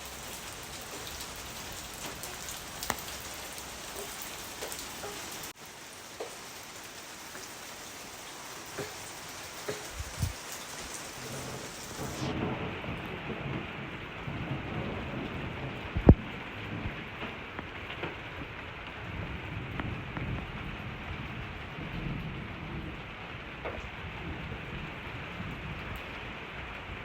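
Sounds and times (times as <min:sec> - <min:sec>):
steady rain: 0:00.0 - 0:27.0
thunder rumbling: 0:09.8 - 0:27.0
sharp thunder crack: 0:11.2 - 0:17.1.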